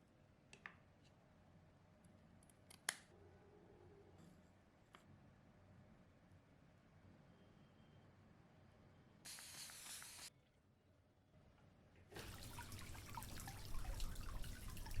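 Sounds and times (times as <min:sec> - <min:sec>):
brief hiss: 0:09.3 - 0:10.3
water dripping: 0:12.2 - 0:15.0
water trickling over rock: 0:12.2 - 0:15.0.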